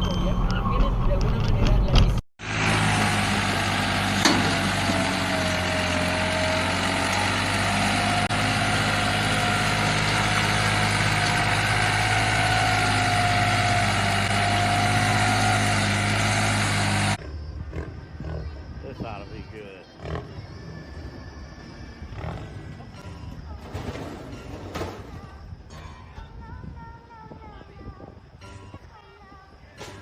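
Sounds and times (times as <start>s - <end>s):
road noise: 0.0s - 23.6s
vehicle engine running: 1.0s - 24.4s.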